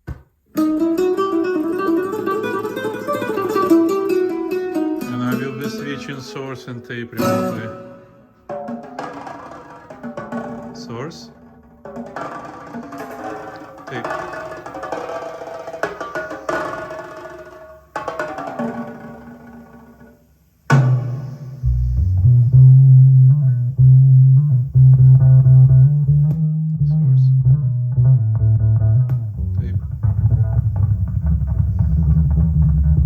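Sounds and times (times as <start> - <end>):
track with heavy bass line: 21.2 - 33.0.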